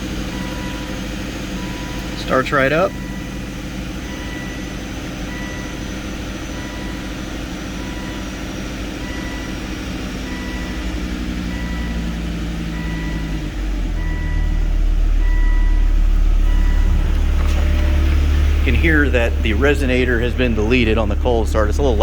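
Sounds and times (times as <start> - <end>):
car engine idling: 0.0 - 22.0
high electronic beep: 15.2 - 22.0.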